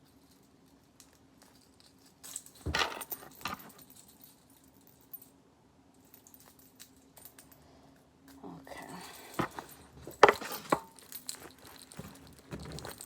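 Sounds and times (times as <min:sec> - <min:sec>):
metal jewelry jingling: 0:00.0 - 0:05.4, 0:08.9 - 0:13.0.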